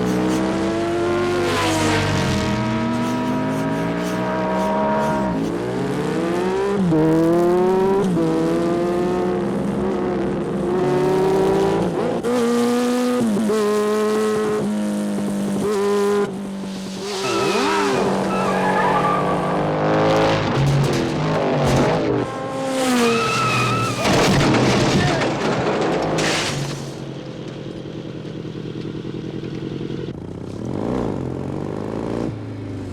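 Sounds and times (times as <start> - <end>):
motorcycle engines revving: 0.0 - 24.3.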